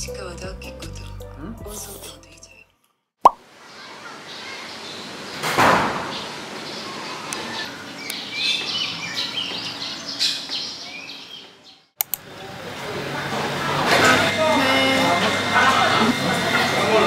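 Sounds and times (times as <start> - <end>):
outdoor background hiss: 3.4 - 11.4
birds chirping and calling: 6.1 - 11.9.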